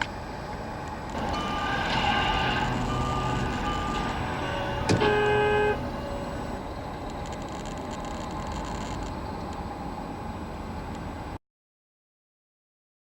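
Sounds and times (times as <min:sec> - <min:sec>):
vehicle road and engine noise: 0:00.0 - 0:11.4
car horn blast: 0:01.2 - 0:06.6.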